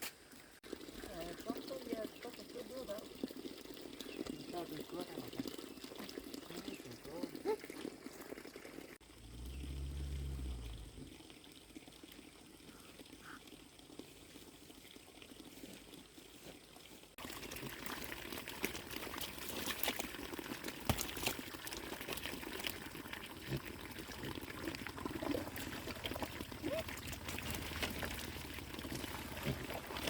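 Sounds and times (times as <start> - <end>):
water pouring and trickling: 0.2 - 30.0
water splashing: 17.1 - 30.0.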